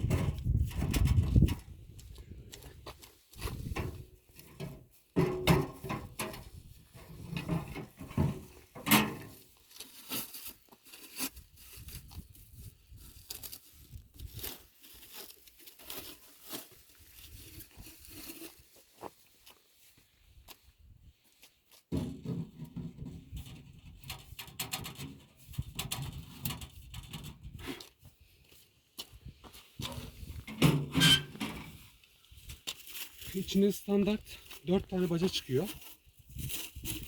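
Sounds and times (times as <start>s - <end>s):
metal pipe knocks and clatters: 3.6s - 9.4s, 21.9s - 27.3s
packaging rustling and crinkling: 9.4s - 19.7s, 31.8s - 37.0s.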